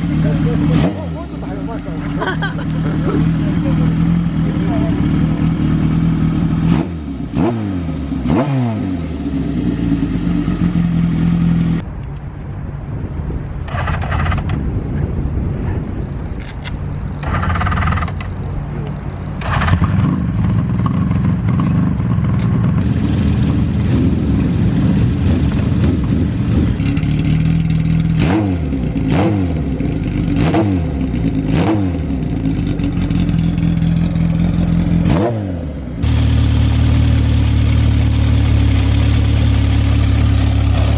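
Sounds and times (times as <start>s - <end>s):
motorcycle engine idling: 0.0s - 7.4s, 9.1s - 11.8s, 17.2s - 30.4s, 31.0s - 35.1s, 35.8s - 40.9s
motorcycle throttle blips: 13.6s - 40.9s.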